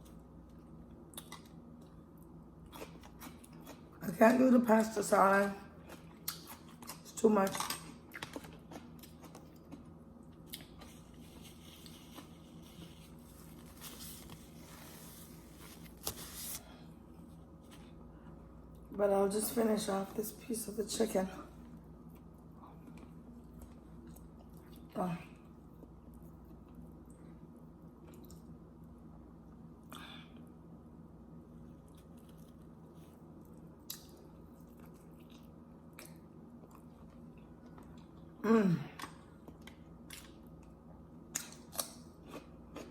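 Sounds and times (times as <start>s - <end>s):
low steady hum: 0.0s - 42.9s
chewing and mouth sounds: 0.5s - 4.0s, 5.7s - 14.0s, 22.1s - 25.0s, 27.9s - 28.6s, 31.8s - 42.9s.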